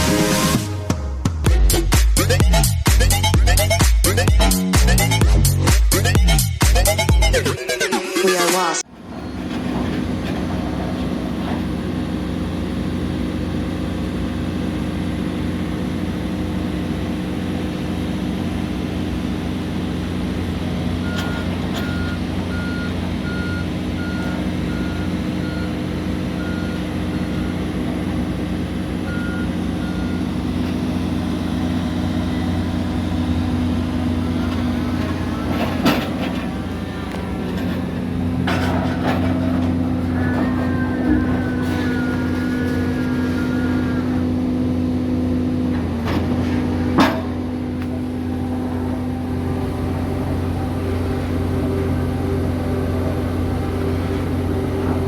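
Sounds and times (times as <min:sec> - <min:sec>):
diesel engine running: 0:00.0 - 0:55.0
reversing alarm beeping: 0:20.4 - 0:37.8, 0:38.5 - 0:44.3
metal clank: 0:34.4 - 0:42.9, 0:46.0 - 0:47.5.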